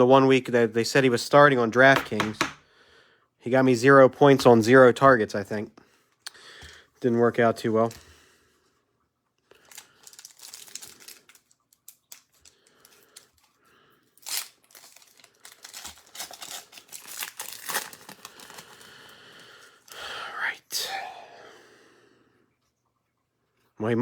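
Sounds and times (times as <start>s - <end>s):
card pack wrapper tearing and crinkling: 9.6s - 13.6s, 14.2s - 19.1s.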